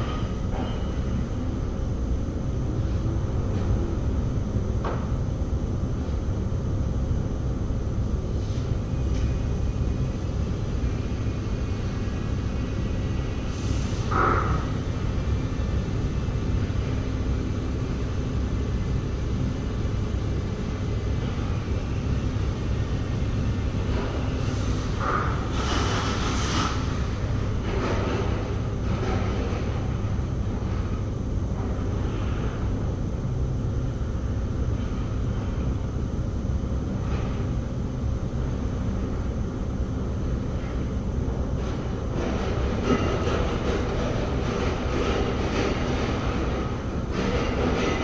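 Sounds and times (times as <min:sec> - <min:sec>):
low mechanical rumble: 0:00.0 - 0:48.0.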